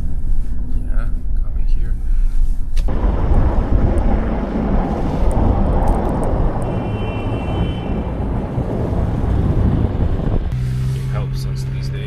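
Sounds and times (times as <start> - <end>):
car engine and tyre rumble: 2.6 - 12.0.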